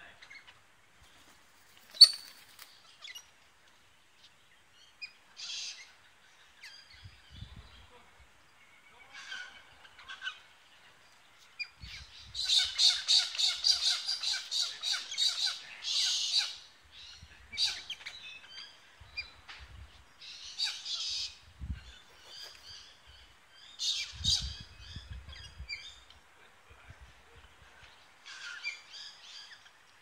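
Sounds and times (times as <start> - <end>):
wild birds squawking: 9.0 - 10.6, 12.4 - 18.8.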